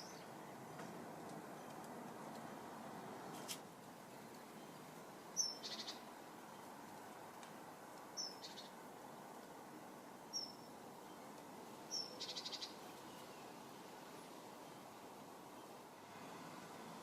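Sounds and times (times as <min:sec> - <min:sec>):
small bird calling with trill: 0:00.0 - 0:00.6, 0:05.4 - 0:06.1, 0:08.2 - 0:08.8, 0:10.3 - 0:11.3, 0:11.9 - 0:13.5.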